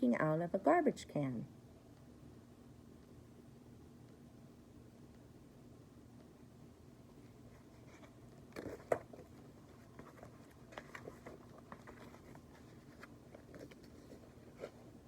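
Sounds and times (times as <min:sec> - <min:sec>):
paper rustling: 0:07.4 - 0:15.0.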